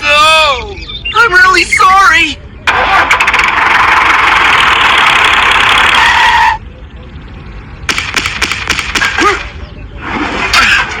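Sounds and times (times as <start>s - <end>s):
small tractor motor buzzing: 2.7s - 6.1s.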